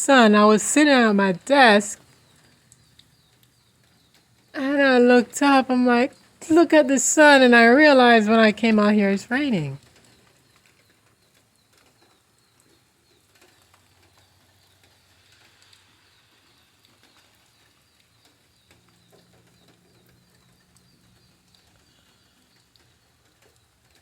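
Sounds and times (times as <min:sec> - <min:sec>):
light rain dripping: 0:00.0 - 0:24.0.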